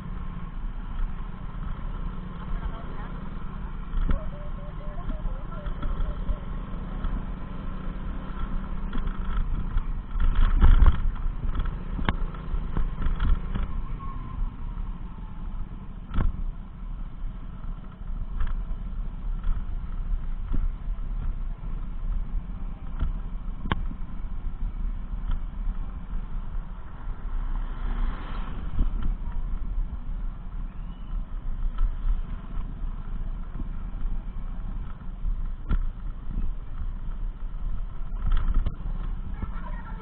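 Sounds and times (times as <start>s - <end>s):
motor vehicle engine rumbling: 0.0s - 40.0s
sharp clicks and knocks: 8.2s - 13.8s, 31.4s - 39.4s.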